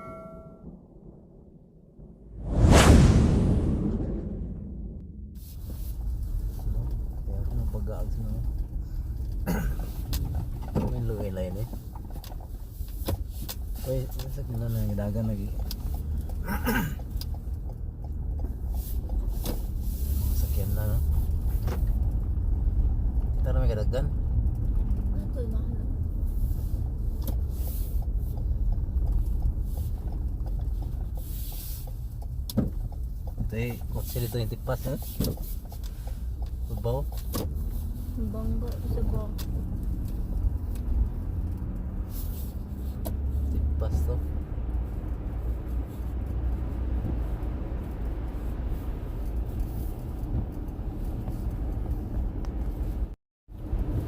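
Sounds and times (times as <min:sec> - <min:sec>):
car engine and road rumble: 0:00.0 - 0:54.0
brief hissing swishes: 0:02.4 - 0:06.0.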